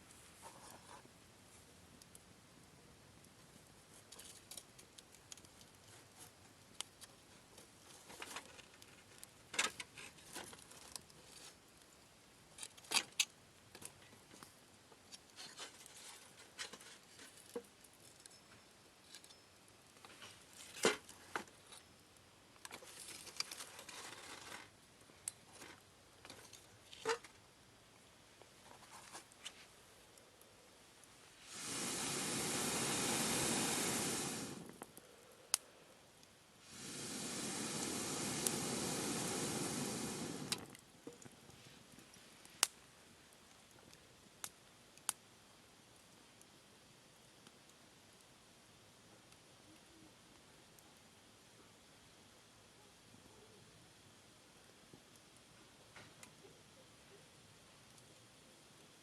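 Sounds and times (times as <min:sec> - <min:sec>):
campfire crackling: 0:00.0 - 0:59.0
sharp fire pops: 0:36.6 - 0:41.3.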